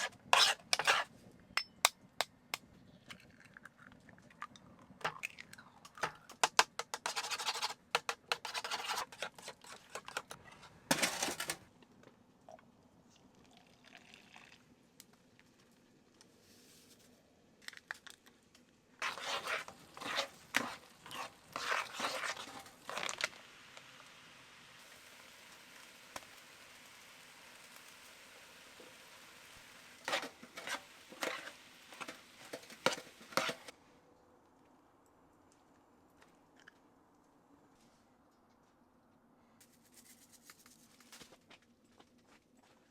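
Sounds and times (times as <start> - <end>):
faint steady hiss: 10.3 - 41.2.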